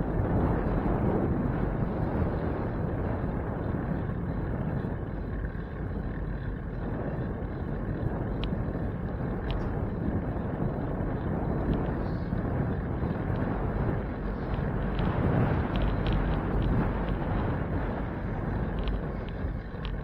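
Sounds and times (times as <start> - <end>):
road and traffic noise: 0.0 - 20.0
wind rumbling on microphone: 0.0 - 20.0.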